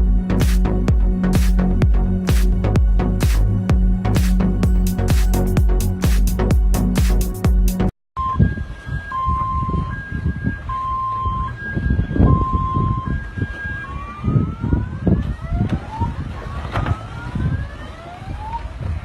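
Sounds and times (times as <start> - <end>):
low rumbling noise: 0.0 - 19.0
siren wailing: 8.2 - 19.0.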